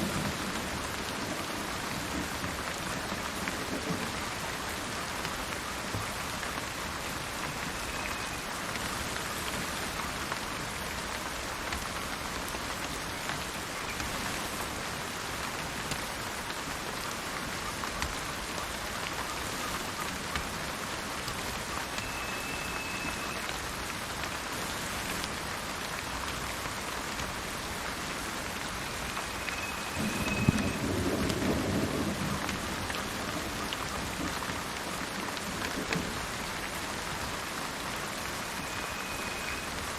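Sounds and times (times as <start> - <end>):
steady rain falling: 0.0 - 39.9
thunder rumbling: 29.8 - 34.4.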